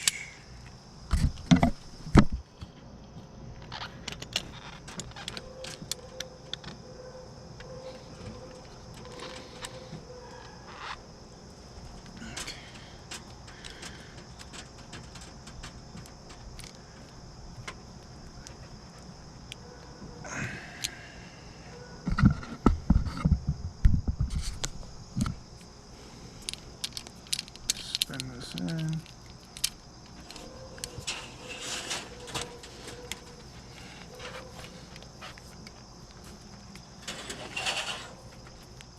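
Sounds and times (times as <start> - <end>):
metal tools clinking: 26.8 - 34.6, 37.0 - 38.2.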